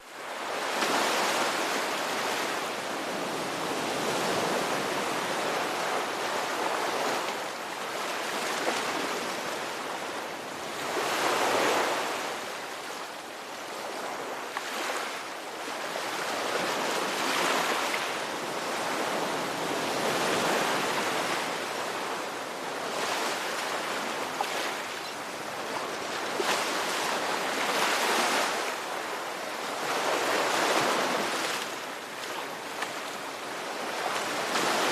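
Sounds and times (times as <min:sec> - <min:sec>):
ocean waves breaking: 0:15.9 - 0:34.9.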